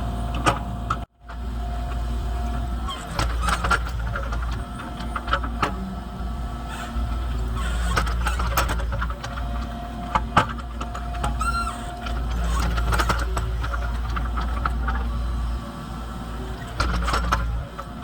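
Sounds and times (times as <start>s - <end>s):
excavator diesel engine running: 0.0s - 18.0s
hydraulic whine: 0.0s - 18.0s
knocks and clanks of digging: 2.9s - 5.9s, 6.7s - 15.2s, 16.5s - 18.0s.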